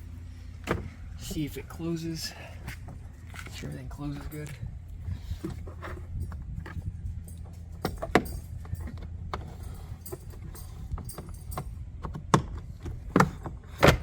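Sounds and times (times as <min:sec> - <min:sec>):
steady low hum: 0:00.0 - 0:14.0
plastic glove box clicks and knocks: 0:12.0 - 0:14.0.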